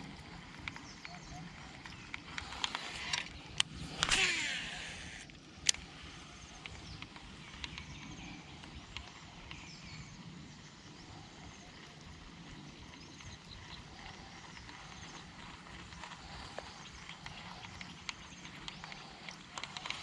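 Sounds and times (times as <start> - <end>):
fishing reel spool whirring: 0.0 - 20.0
reel click: 0.1 - 9.6.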